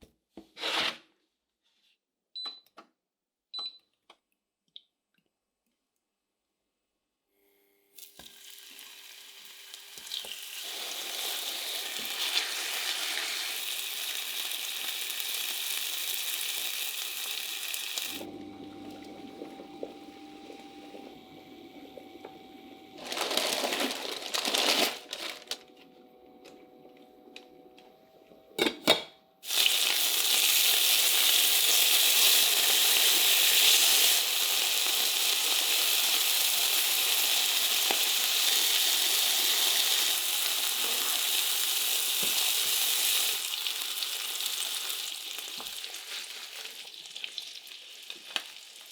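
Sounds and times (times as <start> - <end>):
food sizzling in a pan: 8.0 - 18.3, 29.4 - 48.9.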